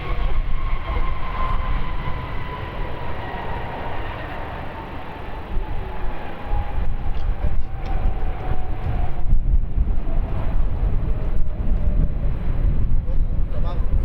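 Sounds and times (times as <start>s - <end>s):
jet engine whine: 0.0s - 14.0s
wind rumble on microphone: 0.0s - 14.0s.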